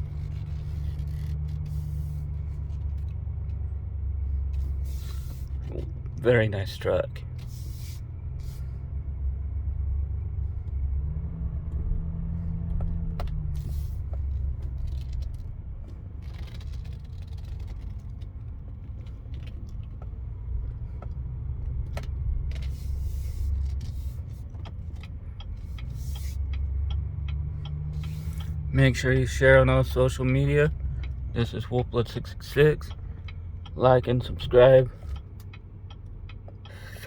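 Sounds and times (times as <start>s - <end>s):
diesel truck engine rumble: 0.0s - 37.0s
light clicks and rattles: 12.7s - 22.8s.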